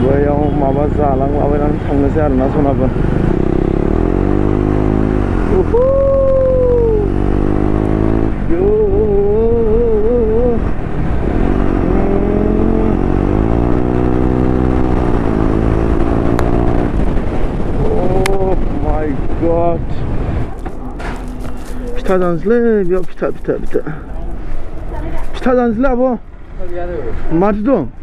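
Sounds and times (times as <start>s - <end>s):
person's drawn-out wavering voice: 5.5s - 7.2s, 8.4s - 10.8s, 11.8s - 13.2s, 17.8s - 18.7s.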